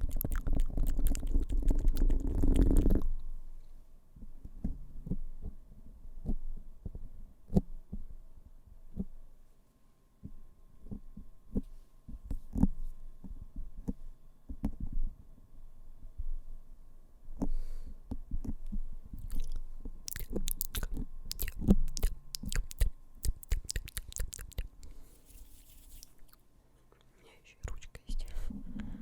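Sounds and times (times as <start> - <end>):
crisp clicks: 19.2 - 26.4.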